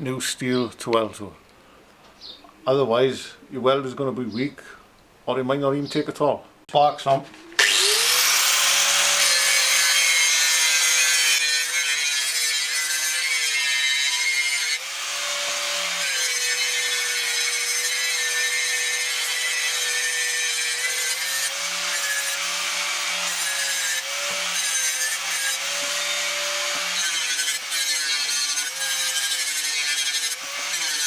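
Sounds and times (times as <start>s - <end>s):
angle grinder grinding steel: 7.5s - 31.0s.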